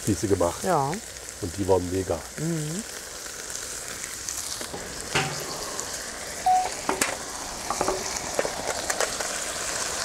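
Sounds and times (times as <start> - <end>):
vegetables sizzling in a wok: 0.0 - 10.0
sharp clicks and knocks: 4.7 - 5.5, 6.8 - 8.5.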